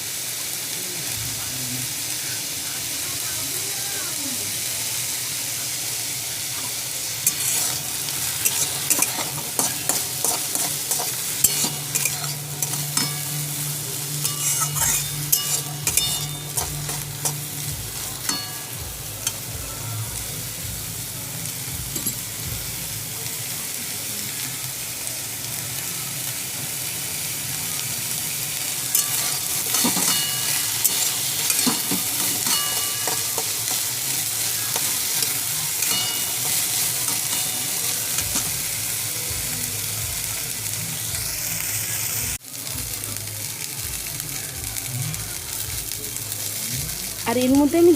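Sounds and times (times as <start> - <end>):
corn sizzling in oil: 0.0 - 47.9
spatula scraping a pan: 7.2 - 19.4, 28.9 - 38.6.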